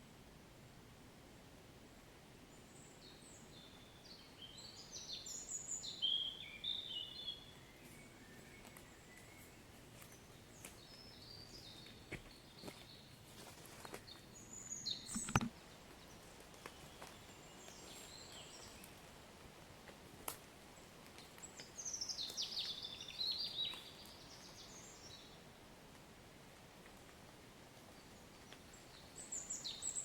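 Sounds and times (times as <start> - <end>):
birds chirping: 14.0 - 19.0.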